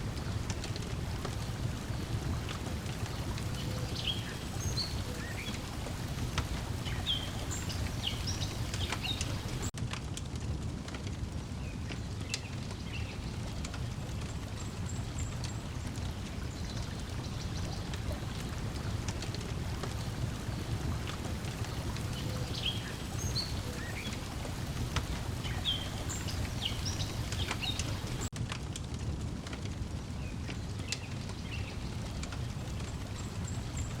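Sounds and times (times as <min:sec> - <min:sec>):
lake water lapping: 0:00.0 - 0:09.7, 0:13.4 - 0:28.3
wood fire crackling: 0:00.0 - 0:34.0
bird chirps: 0:03.2 - 0:09.7, 0:21.5 - 0:28.3.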